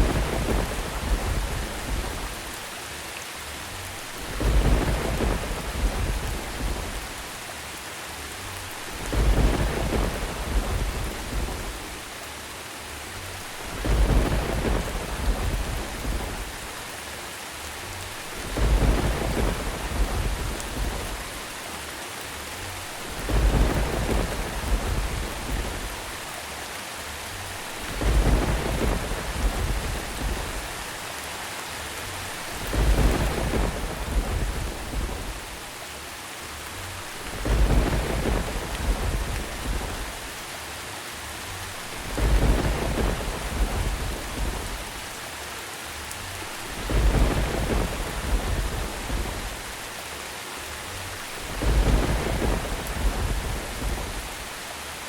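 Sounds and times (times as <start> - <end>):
rolling thunder rumbles: 0.0 - 2.6, 3.8 - 7.4, 8.7 - 12.2, 13.3 - 16.9, 18.0 - 21.5, 22.6 - 26.3, 27.4 - 31.0, 32.0 - 35.8, 36.9 - 40.4, 41.4 - 45.2, 46.3 - 50.0, 50.9 - 54.6
steady rain: 0.0 - 55.0.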